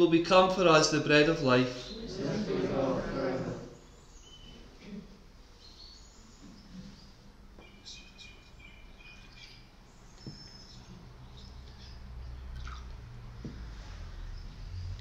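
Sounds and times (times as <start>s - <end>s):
faint birdsong chirps and trills: 3.7s - 4.7s, 5.5s - 12.6s.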